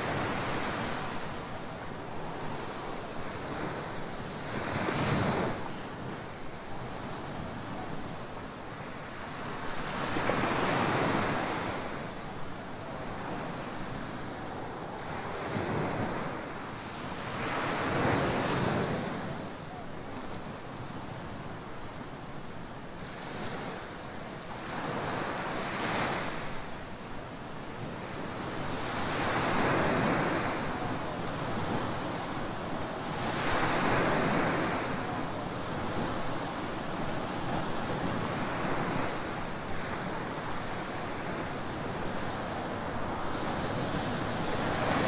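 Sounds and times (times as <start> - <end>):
waves breaking on sand: 22.9 - 45.0.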